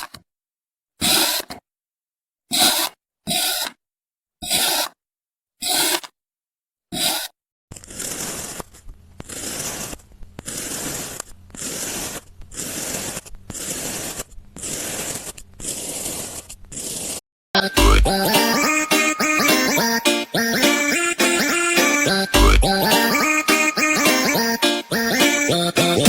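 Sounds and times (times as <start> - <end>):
craft materials scraping and tearing: 1.0 - 1.6, 2.5 - 3.8, 4.4 - 5.0, 5.6 - 6.2, 6.9 - 17.2.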